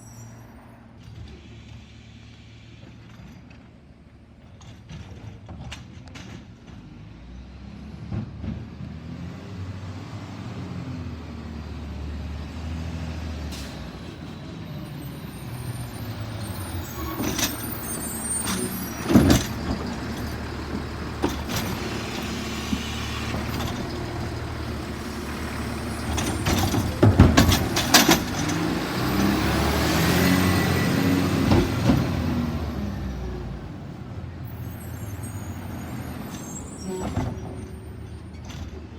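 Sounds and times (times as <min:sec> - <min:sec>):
garbage truck diesel engine running: 0:12.4 - 0:38.9.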